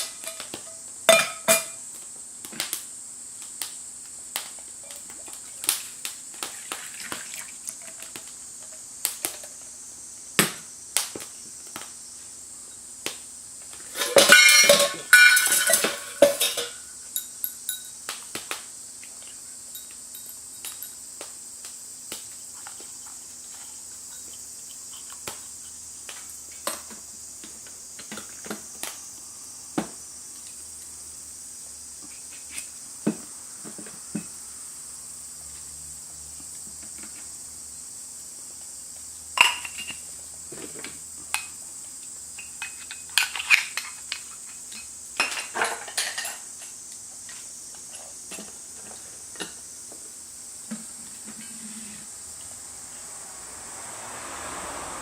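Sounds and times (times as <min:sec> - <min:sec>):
steady high-pitched hiss: 0:00.0 - 0:55.0
metal cookware clinking: 0:01.1 - 0:01.8, 0:14.0 - 0:18.0
cookware clattering: 0:14.0 - 0:16.8, 0:45.2 - 0:46.4.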